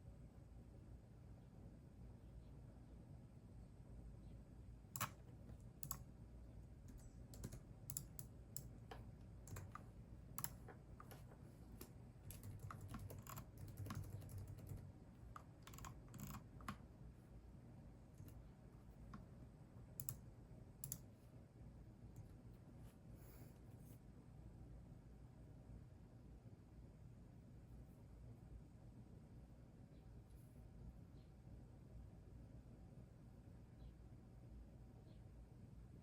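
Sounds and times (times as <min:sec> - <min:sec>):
keyboard typing: 0:05.0 - 0:06.1, 0:06.8 - 0:16.8, 0:20.0 - 0:20.2.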